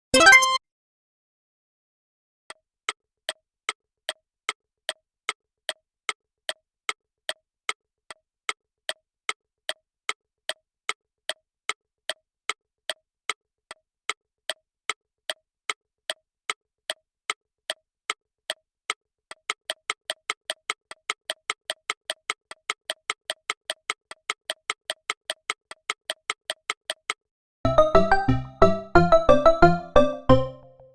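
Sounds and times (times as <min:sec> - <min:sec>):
electronic clock ticks: 0:16.1 - 0:27.2.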